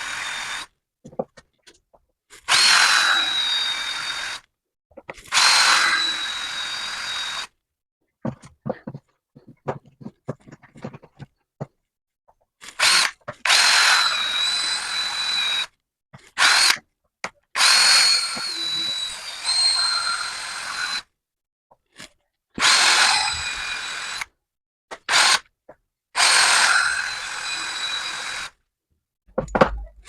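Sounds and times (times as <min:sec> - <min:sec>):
cordless drill whining: 0:00.0 - 0:00.7, 0:02.5 - 0:04.5, 0:05.3 - 0:07.5, 0:12.8 - 0:15.7, 0:16.4 - 0:16.8, 0:17.6 - 0:21.1, 0:22.6 - 0:24.3, 0:25.1 - 0:25.4, 0:26.2 - 0:28.6.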